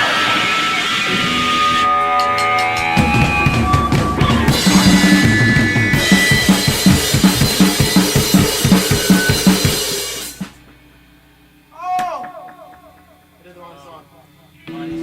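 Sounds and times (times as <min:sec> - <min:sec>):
electric guitar: 0:00.0 - 0:11.0
faint hum: 0:00.0 - 0:15.0
drum kit driving beat: 0:00.8 - 0:10.7.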